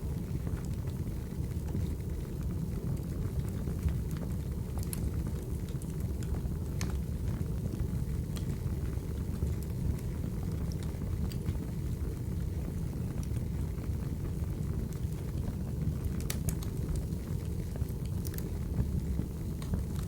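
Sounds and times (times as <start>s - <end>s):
firewood crackling and popping: 0.0s - 20.0s.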